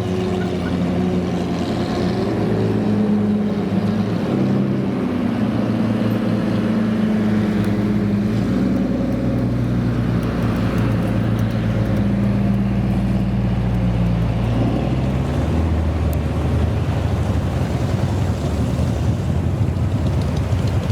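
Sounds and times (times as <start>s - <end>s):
car engine idling: 7.6s - 20.9s.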